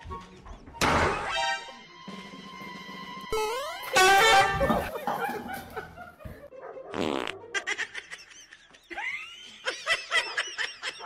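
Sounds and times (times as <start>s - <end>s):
people laughing: 4.3s - 11.0s
fart: 6.9s - 7.4s.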